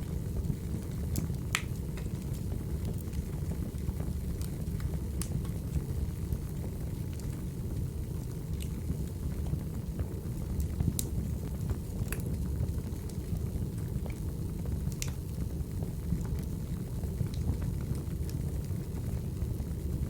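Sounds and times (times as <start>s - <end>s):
low rumble of flames: 0.0s - 20.0s.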